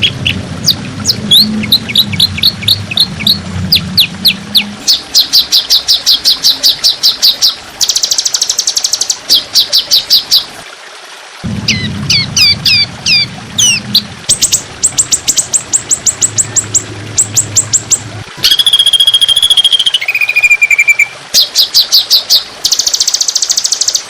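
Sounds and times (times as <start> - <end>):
low hum: 0.0 - 5.6, 11.4 - 18.6
songbird chirping and whistling: 0.0 - 10.4, 11.6 - 24.0
bird buzzy trill: 11.5 - 24.0.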